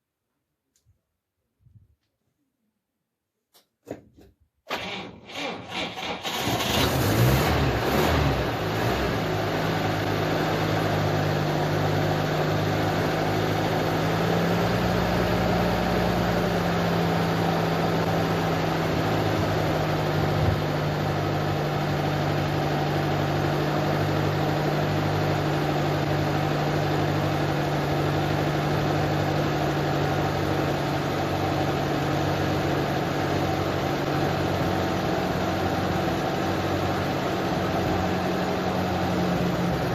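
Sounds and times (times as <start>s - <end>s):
engine starting and idling: 4.7s - 8.7s.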